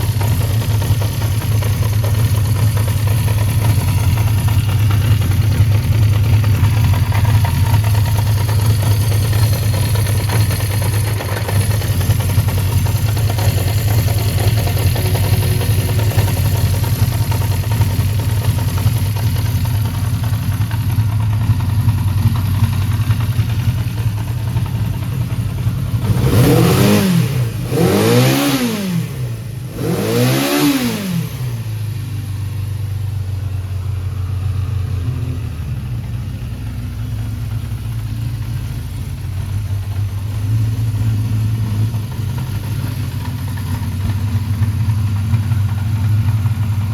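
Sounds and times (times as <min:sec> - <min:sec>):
motorcycle engine idling and revving: 0:00.0 - 0:46.9.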